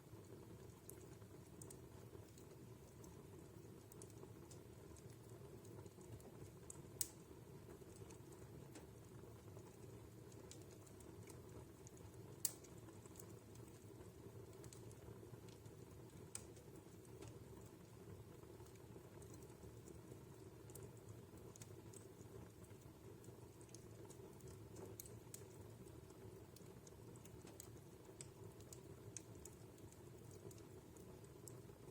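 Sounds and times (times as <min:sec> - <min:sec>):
wood fire crackling: 0:00.0 - 0:31.9
burning wood popping: 0:03.9 - 0:08.8, 0:09.6 - 0:18.6.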